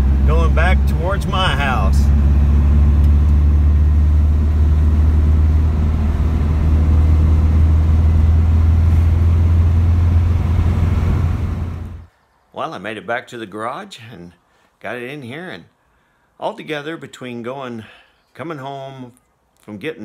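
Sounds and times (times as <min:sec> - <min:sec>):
car engine droning: 0:00.0 - 0:12.1.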